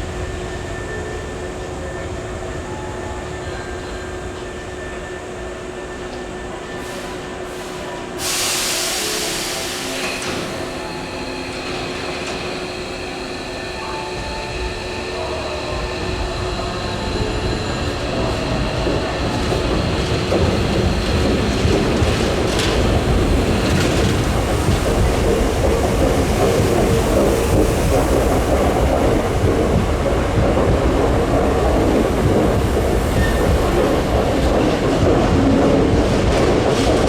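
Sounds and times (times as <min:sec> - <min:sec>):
sharp hiss of air: 0:06.9 - 0:10.9
electric train running: 0:09.0 - 0:37.0.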